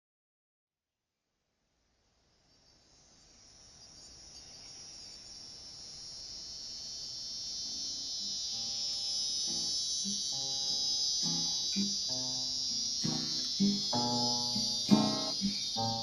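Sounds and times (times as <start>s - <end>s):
cicadas buzzing: 2.1s - 16.0s
acoustic guitar notes: 9.4s - 16.0s.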